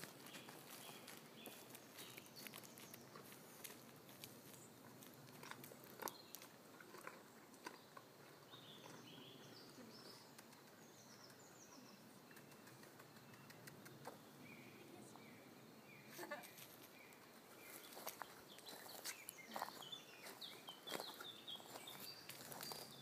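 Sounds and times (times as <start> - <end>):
faint bird chirps: 7.2 - 23.0.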